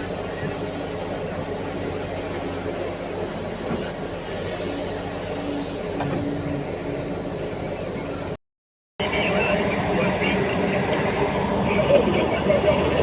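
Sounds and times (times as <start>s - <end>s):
heavy diesel machinery engines: 0.0s - 8.4s, 9.0s - 13.0s.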